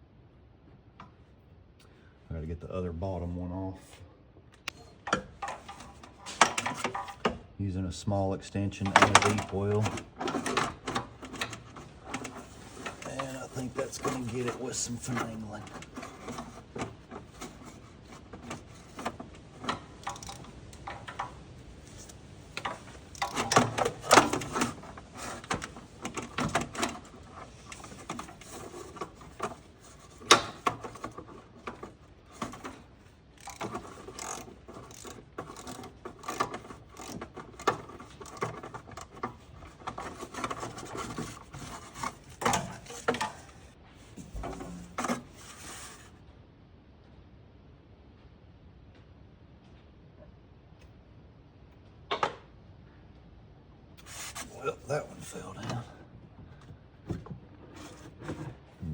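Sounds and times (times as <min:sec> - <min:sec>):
ratchet clicking: 0:20.0 - 0:21.2, 0:22.6 - 0:24.5, 0:33.4 - 0:38.6.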